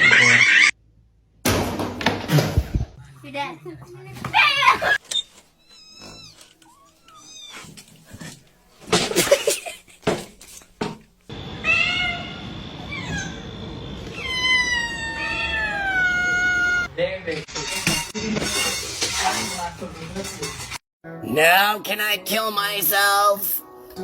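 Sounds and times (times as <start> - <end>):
cats meowing: 5.6 - 8.0, 11.6 - 16.9.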